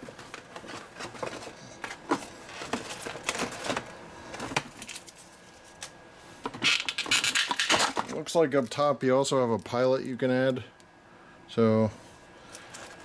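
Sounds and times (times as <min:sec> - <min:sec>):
packaging rustling: 0:00.0 - 0:06.0, 0:12.5 - 0:13.0.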